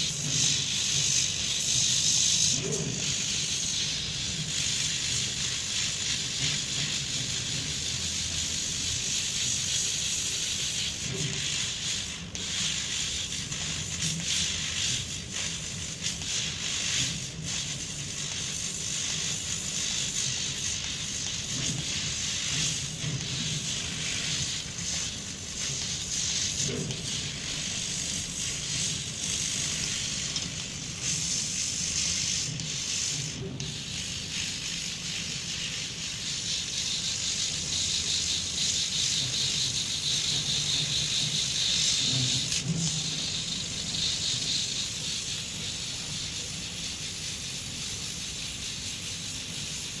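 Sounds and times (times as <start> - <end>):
engraving machine high-pitched noise: 33.2 - 50.0.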